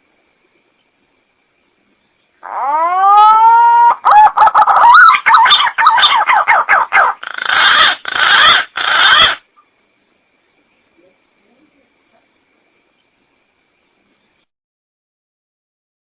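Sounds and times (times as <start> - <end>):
pigeon whistling call: 2.6 - 9.4.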